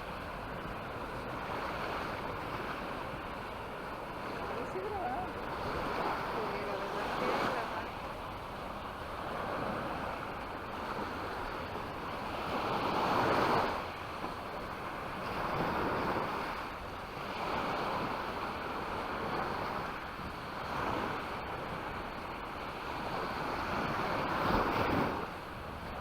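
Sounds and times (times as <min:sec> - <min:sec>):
sea waves breaking on beach: 0:00.0 - 0:26.0
wind on microphone: 0:00.0 - 0:26.0.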